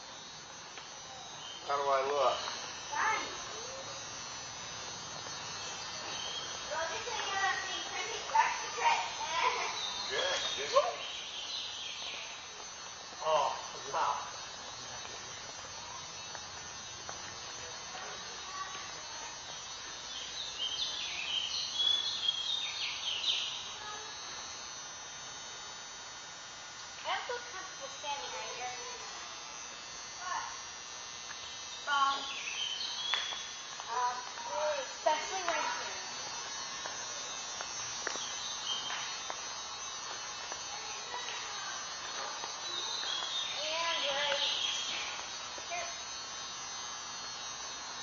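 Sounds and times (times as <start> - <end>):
background hum: 0.0 - 48.0
steady buzzing: 0.0 - 48.0
high-pitched chirps: 5.2 - 12.6, 31.3 - 46.0.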